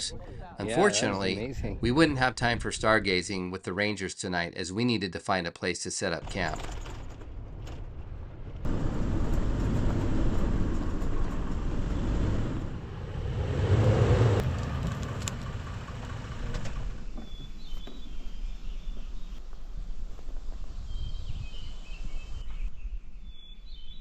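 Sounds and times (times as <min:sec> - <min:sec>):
vehicle engine and road rumble: 0:06.2 - 0:20.5
faint bird chirps: 0:20.8 - 0:24.0.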